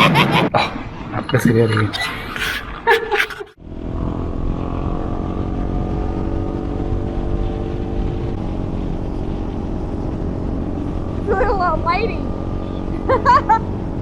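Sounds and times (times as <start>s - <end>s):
motorcycle engine running: 3.6s - 14.0s.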